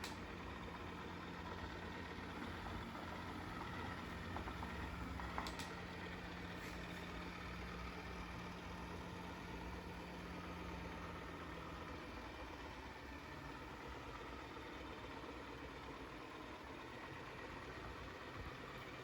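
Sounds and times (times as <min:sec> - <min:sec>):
faint clicks: 0:00.0 - 0:00.2, 0:02.4 - 0:05.9.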